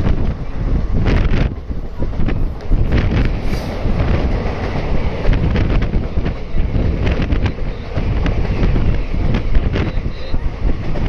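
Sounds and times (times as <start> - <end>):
moving passenger train rumbling: 0.0 - 11.0
train passing close by: 0.0 - 11.0
wind buffeting microphone: 0.0 - 11.0.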